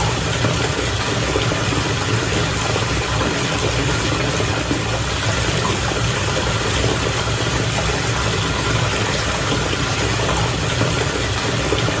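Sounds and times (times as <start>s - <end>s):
bath water bubbling: 0.0s - 12.0s.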